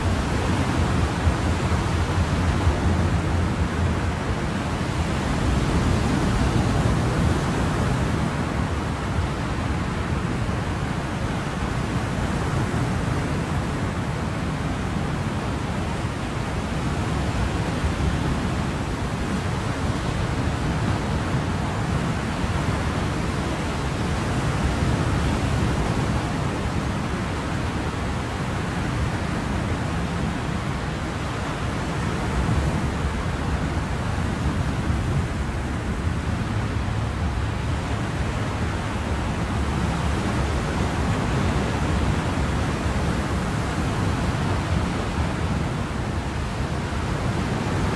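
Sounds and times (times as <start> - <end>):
ocean waves washing: 16.8 - 47.9.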